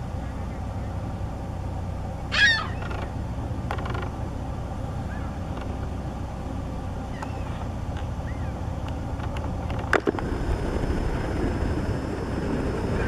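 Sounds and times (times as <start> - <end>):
steady low rumble: 0.0 - 13.0
loud bird call: 2.2 - 3.1, 5.0 - 5.4, 7.1 - 7.6
faint bird chirps: 5.0 - 5.4, 7.1 - 7.6, 8.2 - 8.6.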